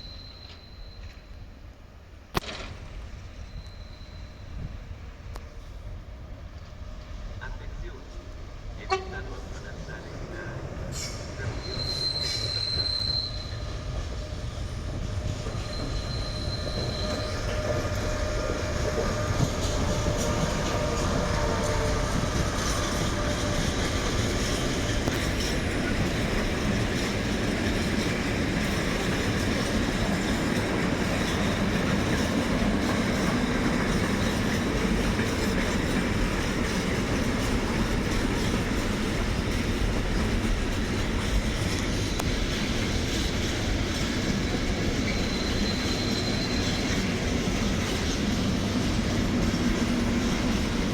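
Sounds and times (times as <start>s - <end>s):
freight train rolling past: 0.0s - 50.9s
high-pitched wheel squeal: 10.9s - 13.8s, 15.3s - 23.6s, 44.9s - 47.1s.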